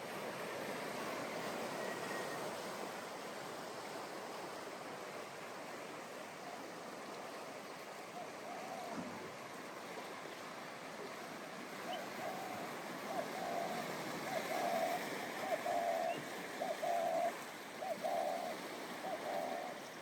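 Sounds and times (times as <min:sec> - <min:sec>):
waves breaking on beach: 0:00.0 - 0:20.0.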